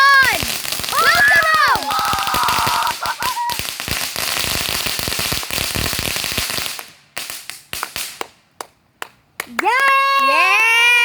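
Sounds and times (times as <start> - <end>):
fireworks crackling: 0.0 - 8.6.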